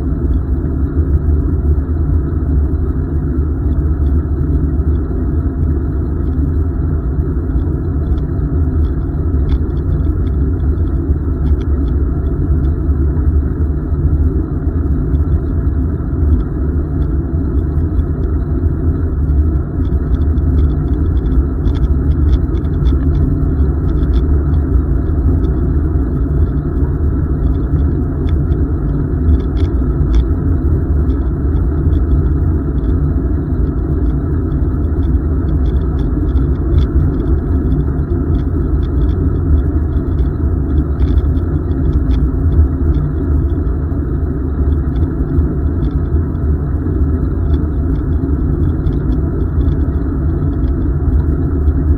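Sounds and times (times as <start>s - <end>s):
faint high ticks: 7.5s - 13.4s, 19.0s - 46.5s, 47.4s - 51.9s.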